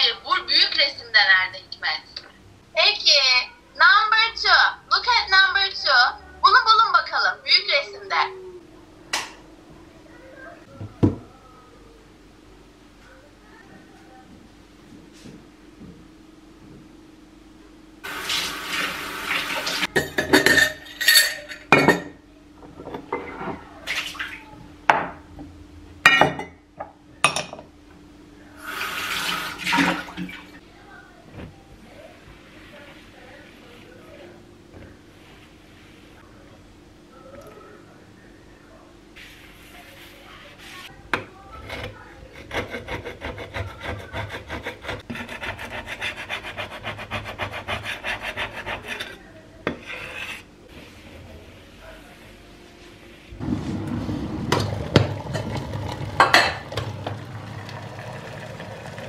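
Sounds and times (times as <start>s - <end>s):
water running: 18.0s - 20.7s, 28.6s - 30.6s, 53.4s - 59.0s
dishes and glassware clinking: 19.9s - 22.2s, 26.1s - 26.6s.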